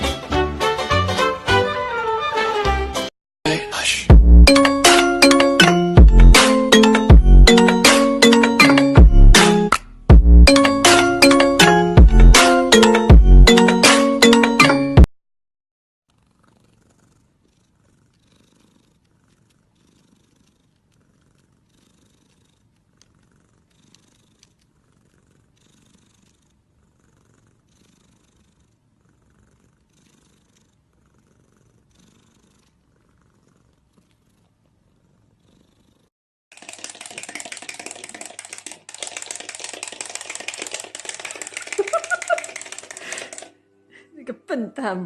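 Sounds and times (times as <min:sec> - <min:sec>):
cat purring faintly: 0:16.1 - 0:36.1.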